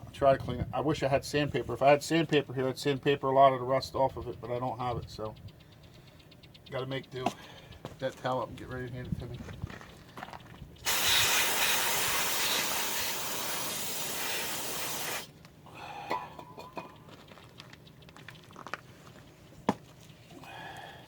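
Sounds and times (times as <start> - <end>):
aerosol spray hiss: 10.9 - 15.3.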